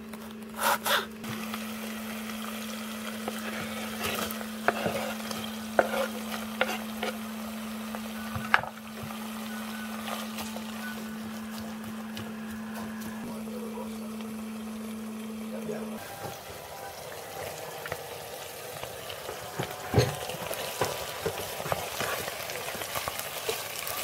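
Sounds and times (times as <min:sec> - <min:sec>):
steady low hum: 0:00.0 - 0:23.4
food sizzling: 0:00.0 - 0:24.0
spatula knocking and scraping: 0:03.3 - 0:07.2.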